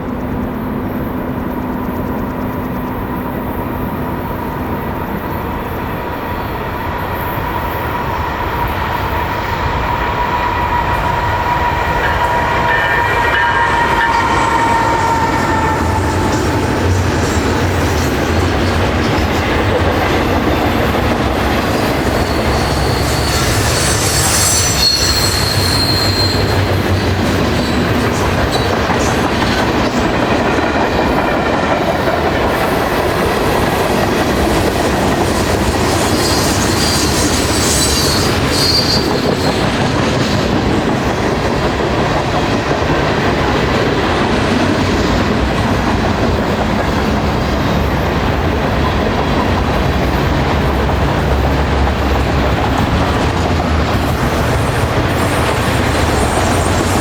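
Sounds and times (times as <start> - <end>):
train wheels rumbling on rail: 0.0 - 57.0
high-pitched wheel squeal: 10.0 - 18.2, 21.7 - 28.8, 35.6 - 39.9.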